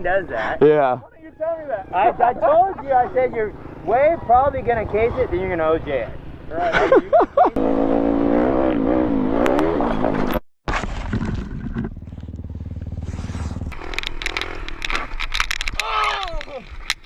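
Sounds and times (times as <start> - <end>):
dirt bike engine revving: 7.6 - 10.4
dirt bike engine chugging: 11.8 - 14.6.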